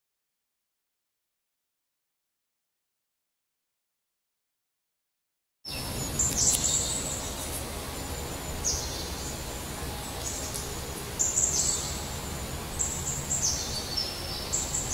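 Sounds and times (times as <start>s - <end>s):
low outdoor hum: 5.7s - 14.9s.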